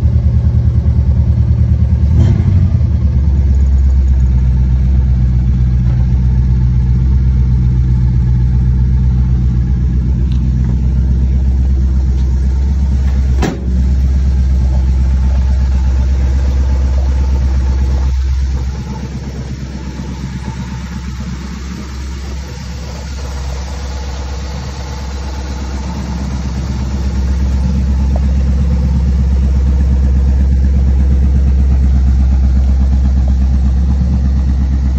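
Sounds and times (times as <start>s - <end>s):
car engine idling: 0.0s - 34.9s
sharp knock: 13.4s - 13.8s.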